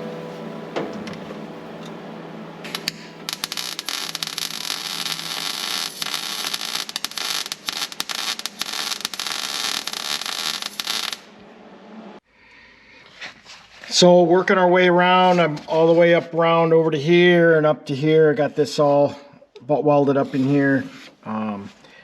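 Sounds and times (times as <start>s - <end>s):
faint music: 0.0s - 3.6s
welding arc crackling hiss: 2.6s - 11.5s.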